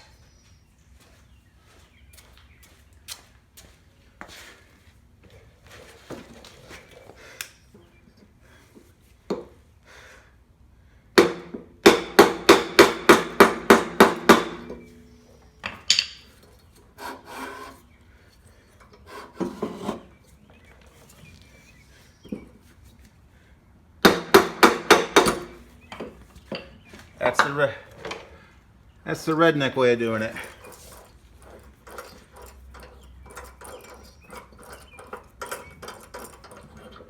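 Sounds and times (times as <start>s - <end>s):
hammer striking wood block: 11.2s - 14.8s, 24.0s - 25.6s
wood scraping on metal: 13.5s - 23.0s, 29.1s - 37.0s.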